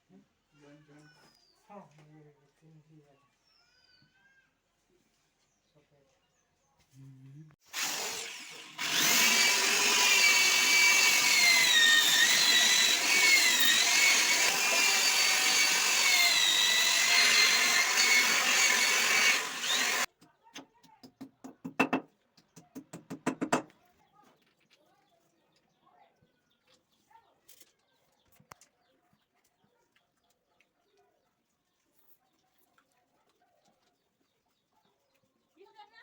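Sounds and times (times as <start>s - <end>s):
electric drill whining: 7.7s - 20.1s.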